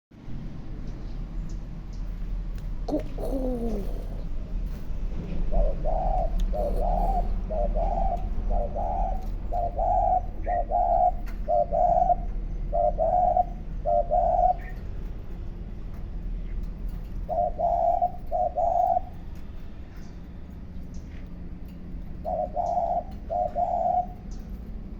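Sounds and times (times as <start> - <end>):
dove cooing: 2.9 - 15.1, 16.5 - 20.2, 21.6 - 24.9.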